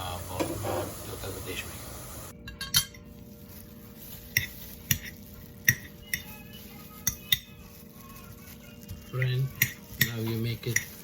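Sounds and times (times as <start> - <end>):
fork clinking and scraping a dish: 9.5 - 11.0.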